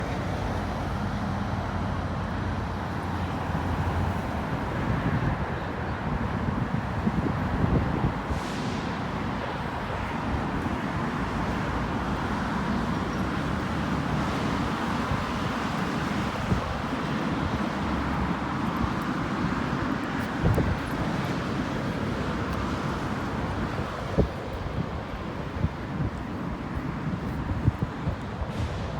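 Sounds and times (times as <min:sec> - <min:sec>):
steady rushing outdoor noise: 0:00.0 - 0:28.9
wind buffeting microphone: 0:03.4 - 0:28.9.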